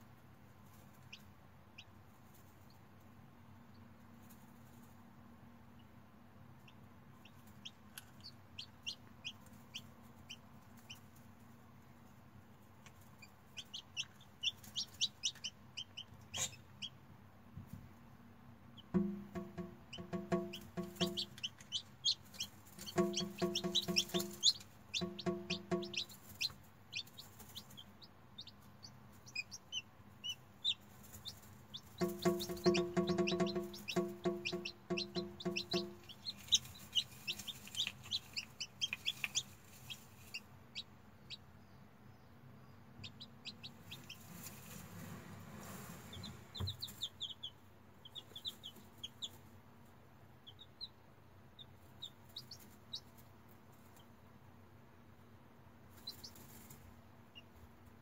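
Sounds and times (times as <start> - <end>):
chicks peeping: 0.6 - 2.8, 3.7 - 5.0, 6.6 - 17.0, 18.7 - 54.4, 55.9 - 58.0
low pulsing clucking: 32.0 - 37.0.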